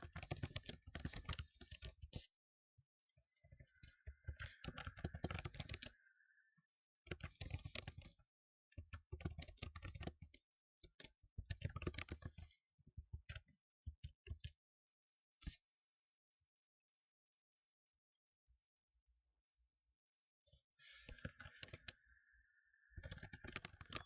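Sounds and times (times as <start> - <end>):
fast typing on keyboard: 0.0 - 2.3, 4.0 - 6.0, 7.1 - 8.2, 8.8 - 12.6, 23.0 - 24.0.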